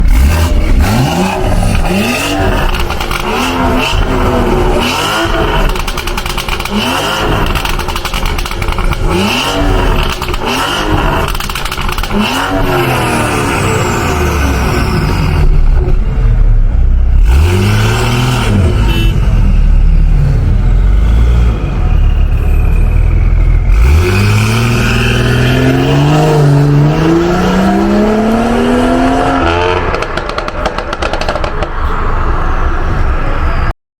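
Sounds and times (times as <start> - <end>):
car engine revving and accelerating: 0.0 - 16.0, 17.0 - 31.6
exhaust crackling: 0.0 - 31.9.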